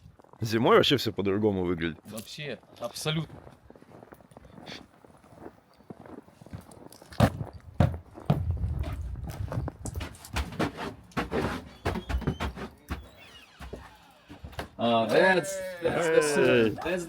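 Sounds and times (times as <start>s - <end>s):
shuffling thudding footsteps: 6.3s - 16.7s.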